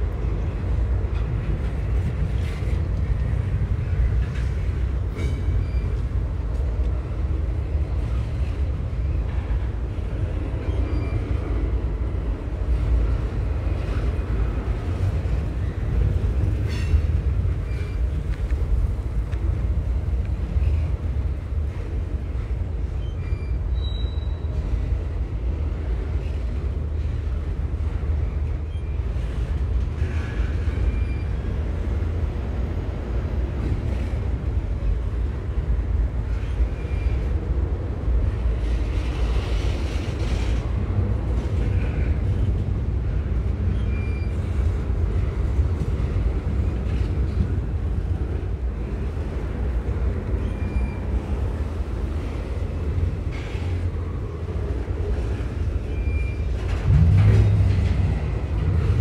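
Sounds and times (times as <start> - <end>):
freight train rumbling past: 0.0 - 59.0
faint short squeaks: 5.2 - 6.0, 16.7 - 18.2, 23.0 - 24.6, 30.1 - 31.4, 43.7 - 44.7, 50.4 - 51.3, 55.8 - 57.6.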